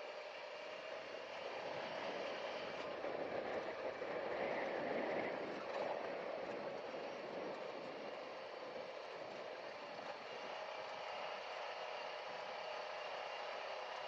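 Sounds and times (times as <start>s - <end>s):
vehicle engine and tyre noise: 0.0s - 14.0s.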